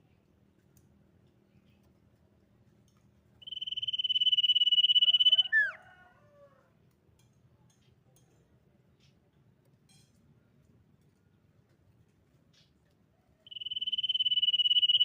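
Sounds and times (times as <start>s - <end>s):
bird pulsed whistle call: 3.4s - 5.8s, 13.5s - 15.0s.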